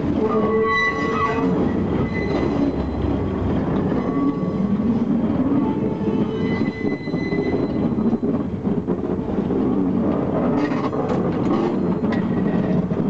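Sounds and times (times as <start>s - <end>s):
wheels rumbling on rails: 0.0s - 13.0s
high wheel squeal: 0.1s - 8.5s.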